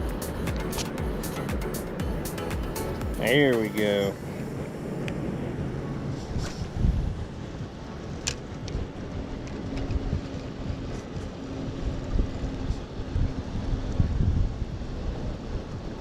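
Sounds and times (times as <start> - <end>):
faint steady hum: 0.0 - 16.0
wind buffeting microphone: 3.4 - 16.0.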